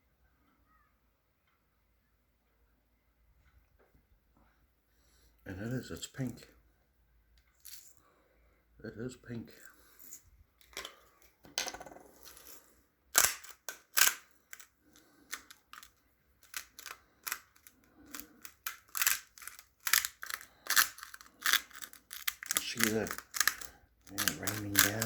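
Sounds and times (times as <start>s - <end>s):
salt grinder clicking: 13.2s - 25.0s.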